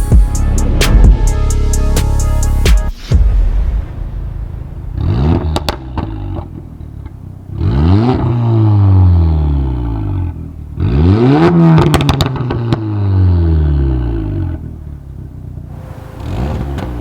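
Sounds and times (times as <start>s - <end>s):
car engine revving: 0.0s - 17.0s
exhaust pops and crackles: 3.1s - 9.2s, 10.1s - 13.2s, 15.7s - 17.0s.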